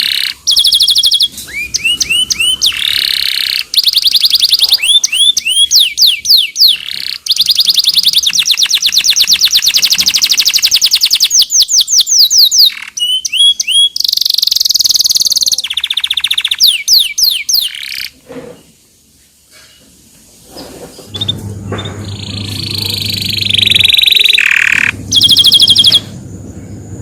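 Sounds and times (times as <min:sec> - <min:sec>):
canary singing trills: 0:00.0 - 0:18.2, 0:21.0 - 0:27.0.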